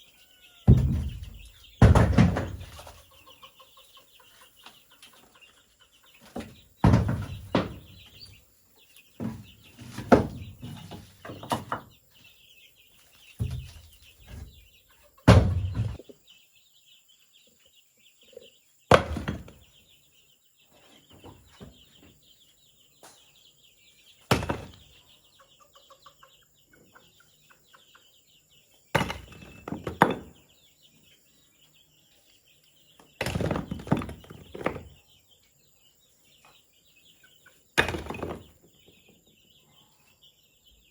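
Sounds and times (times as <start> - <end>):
heavy thuds on bamboo: 0.7 - 2.9, 6.3 - 8.0, 9.2 - 11.9, 13.4 - 14.5, 15.3 - 16.0, 18.9 - 19.7, 24.3 - 24.9, 29.0 - 30.4, 33.2 - 34.9.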